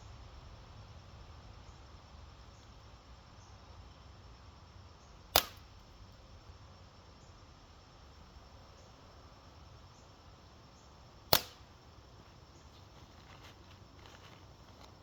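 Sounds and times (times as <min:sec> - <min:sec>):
faint steady hiss: 0:00.0 - 0:15.0
slingshot impact crack: 0:05.3 - 0:05.8, 0:11.3 - 0:11.8.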